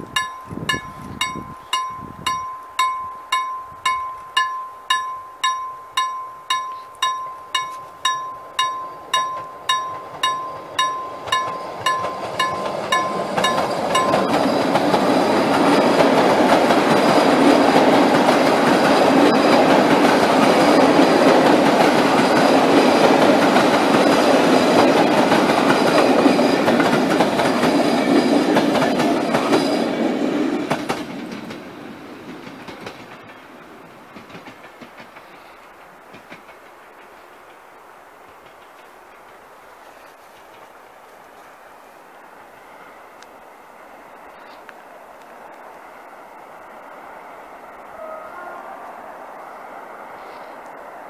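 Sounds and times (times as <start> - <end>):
railroad crossing bell ringing: 0.0 - 30.0
passenger train passing: 0.0 - 51.0.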